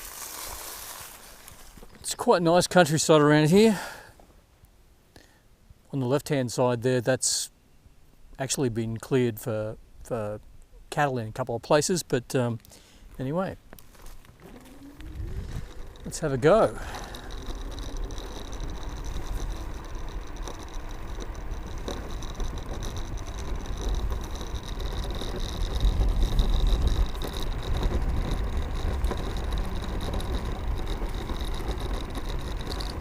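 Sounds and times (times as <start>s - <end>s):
road noise: 13.6s - 33.0s
electric motor whine: 14.0s - 33.0s
wind rumbling on microphone: 14.2s - 33.0s.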